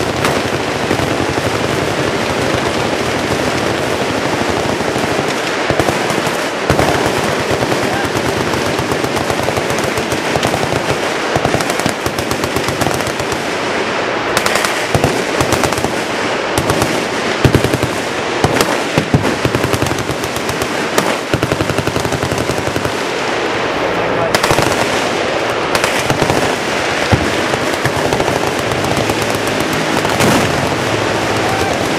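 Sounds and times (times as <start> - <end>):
machine guns firing bursts: 0.0 - 13.7, 14.4 - 23.2, 24.3 - 31.9
loud gunshot cracks: 25.7 - 31.9.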